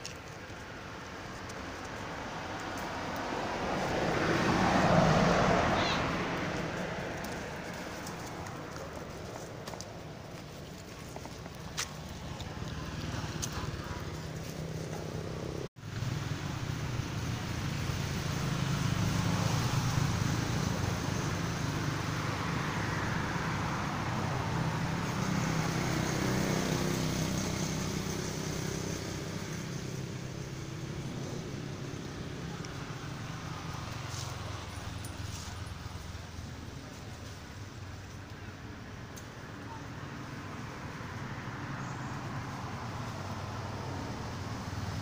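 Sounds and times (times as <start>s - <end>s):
road noise: 0.0s - 45.0s.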